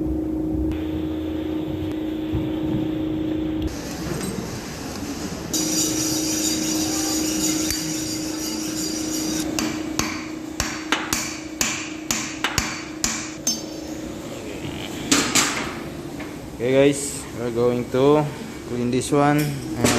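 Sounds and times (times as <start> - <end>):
machine hum with high whine: 0.0 - 19.9
hammer striking metal: 5.6 - 13.8.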